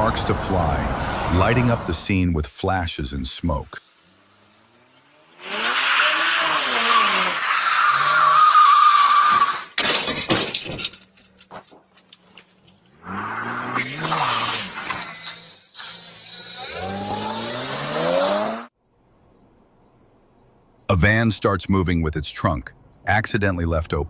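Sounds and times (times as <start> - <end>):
car engine accelerating: 3.8 - 8.4, 12.8 - 18.7
car collision impact: 9.3 - 12.9
debris clattering: 9.4 - 13.0.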